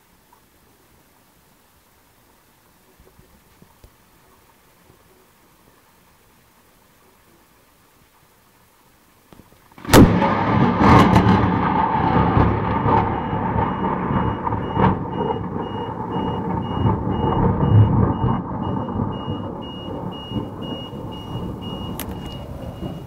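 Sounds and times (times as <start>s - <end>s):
thunder rumbling: 9.8s - 23.0s
high electronic beep: 12.7s - 23.0s.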